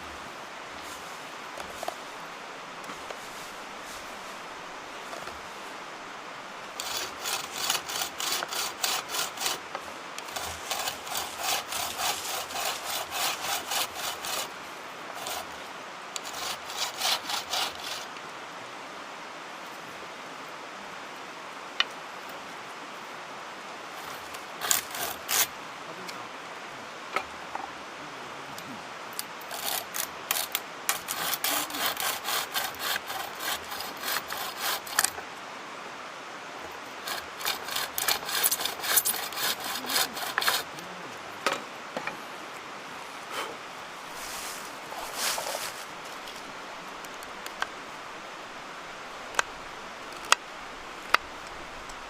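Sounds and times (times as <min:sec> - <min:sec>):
bucksaw cutting wood: 0:06.8 - 0:15.6, 0:16.2 - 0:18.2, 0:24.0 - 0:25.5, 0:29.2 - 0:35.2, 0:37.0 - 0:40.8.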